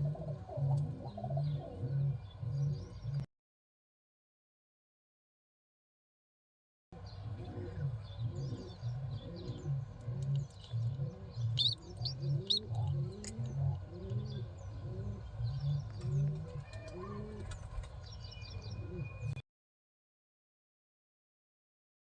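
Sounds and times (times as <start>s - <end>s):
pigeons cooing: 0.0s - 3.3s, 7.0s - 17.8s, 18.6s - 19.4s.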